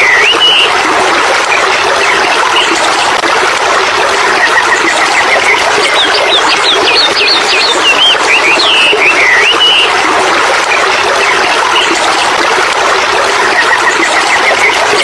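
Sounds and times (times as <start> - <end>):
stream water rushing: 0.0 - 15.0
small birds chirping: 5.2 - 9.9.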